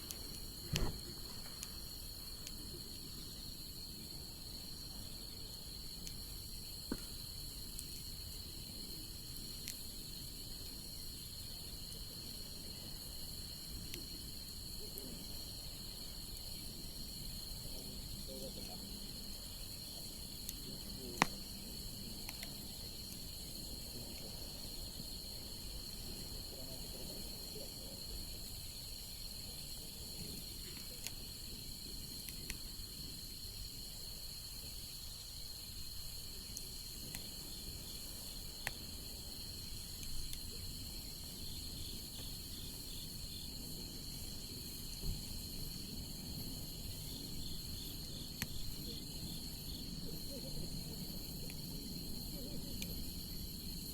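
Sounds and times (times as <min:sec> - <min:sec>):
fire popping: 0:00.0 - 0:03.4, 0:18.4 - 0:26.3, 0:26.9 - 0:43.2
bonfire burning with hiss: 0:00.0 - 0:53.9
high-pitched insect trill: 0:32.6 - 0:53.9.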